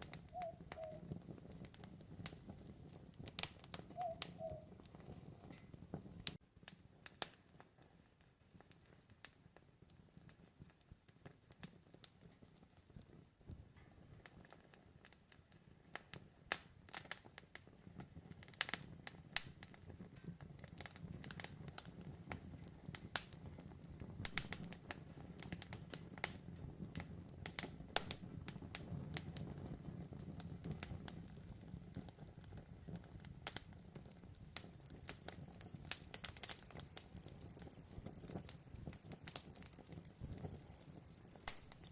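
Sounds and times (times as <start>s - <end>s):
campfire crackling and popping: 0.0s - 41.9s
crickets chirping: 33.8s - 41.9s.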